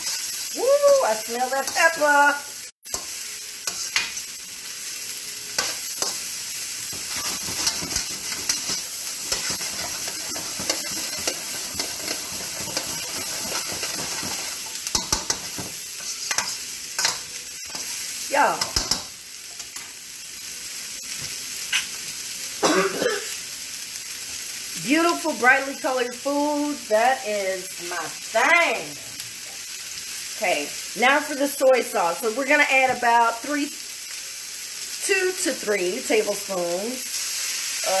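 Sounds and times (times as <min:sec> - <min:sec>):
food sizzling in a wok: 0:00.0 - 0:38.0
spatula scraping and knocking pan: 0:06.9 - 0:17.9.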